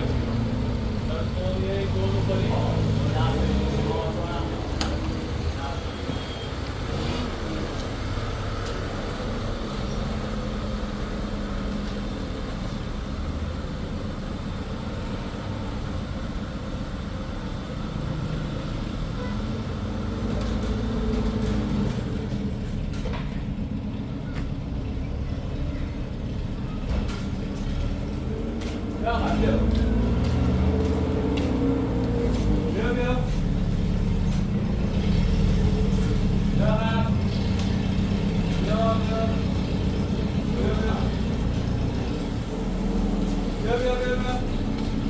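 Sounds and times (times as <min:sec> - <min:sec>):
vehicle engine running: 0:00.0 - 0:45.0.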